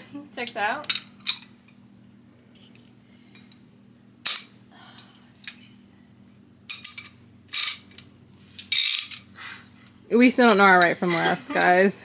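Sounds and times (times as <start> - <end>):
metal hand tools clinking: 6.7 - 9.3.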